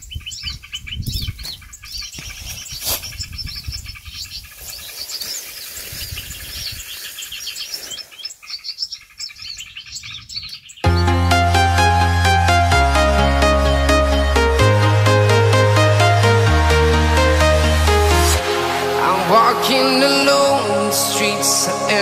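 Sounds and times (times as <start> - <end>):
songbirds chirping and twittering: 0.0 - 16.3.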